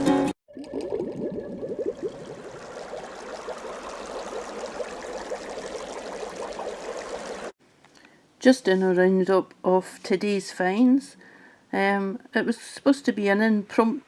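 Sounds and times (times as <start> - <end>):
water bubbling: 0.5 - 7.6
water trickling and gurgling: 0.5 - 7.6.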